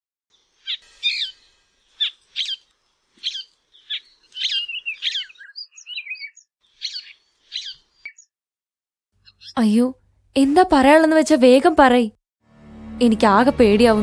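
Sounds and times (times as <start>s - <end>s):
birds chirping: 0.3s - 8.3s, 9.2s - 10.5s.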